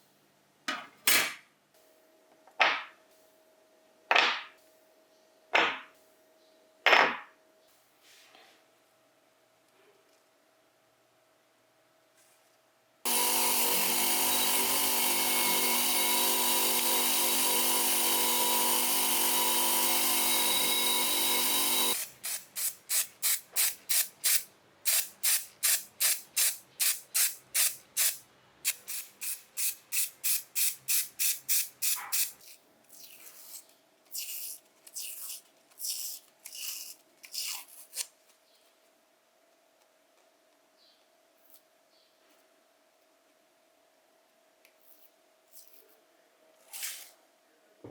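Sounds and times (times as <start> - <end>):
power tool running: 13.1 - 22.4.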